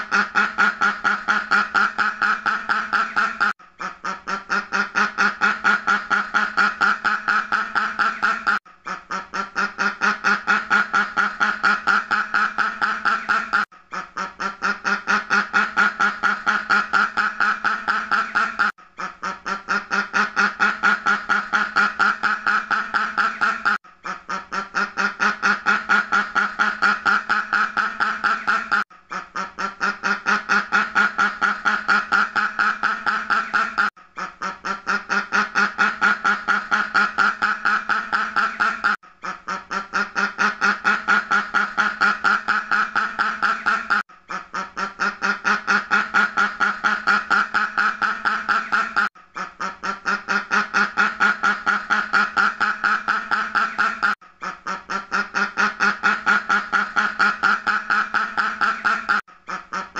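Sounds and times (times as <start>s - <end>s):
duck quacking: 0.0s - 59.9s.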